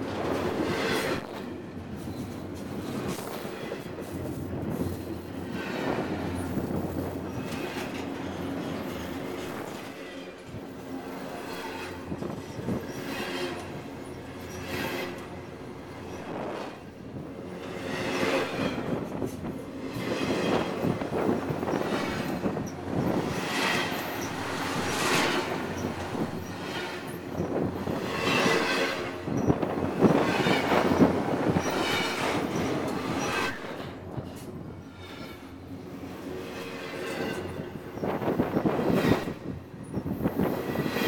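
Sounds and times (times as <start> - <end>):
freight train wheels rumbling: 0.0 - 41.0
steel wheel squeals: 17.7 - 35.6.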